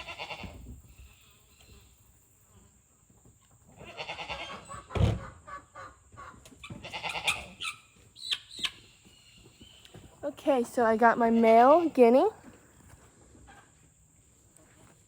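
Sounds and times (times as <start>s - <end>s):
guinea fowl cackling alarm calls: 4.0s - 8.9s.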